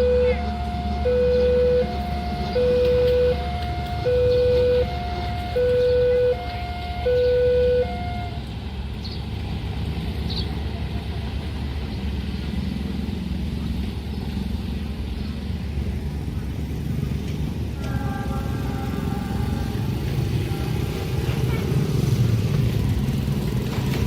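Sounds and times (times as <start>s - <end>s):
level crossing two-tone alarm: 0.0s - 8.4s
low vehicle rumble: 0.0s - 24.0s.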